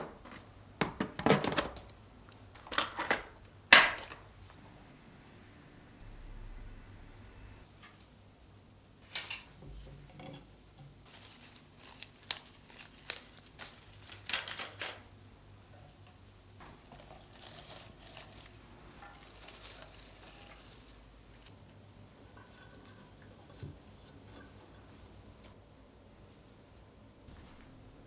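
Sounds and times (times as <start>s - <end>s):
household items clattering: 0.0s - 1.9s, 2.6s - 4.3s, 13.6s - 15.1s
faint steady hum: 1.8s - 28.0s.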